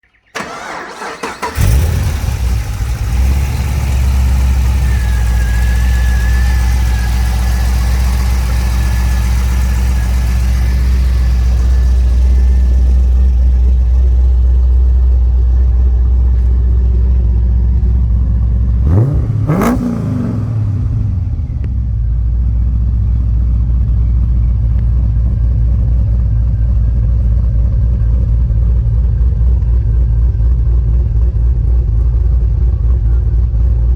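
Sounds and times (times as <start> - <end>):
car engine cranking and idling: 0.0 - 33.9
engine throttle blip: 0.1 - 17.3.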